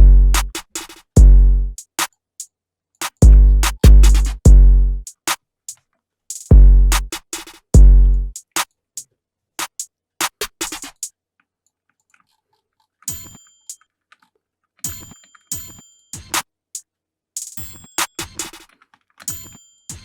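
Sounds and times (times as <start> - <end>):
booming bass hits: 0.0 - 0.5, 1.2 - 1.7, 3.2 - 5.0, 6.5 - 7.0, 7.8 - 8.3
hi-hat ticks: 0.0 - 8.7, 9.6 - 11.1, 17.4 - 18.7.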